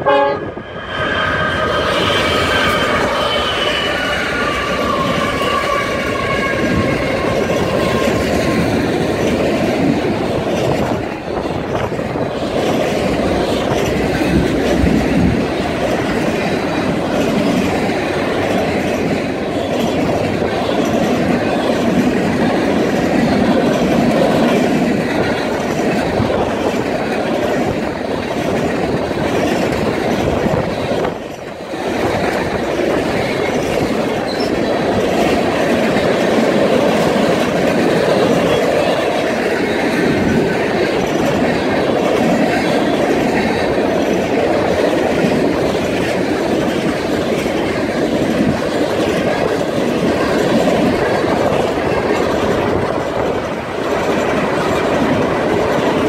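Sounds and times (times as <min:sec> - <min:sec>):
locomotive horn chord: 0:00.0 - 0:00.7
freight cars rumbling on rails: 0:00.0 - 0:56.0.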